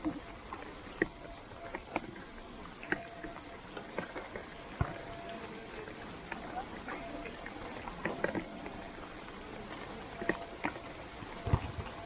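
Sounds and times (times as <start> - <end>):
rain hissing: 0.0 - 12.0.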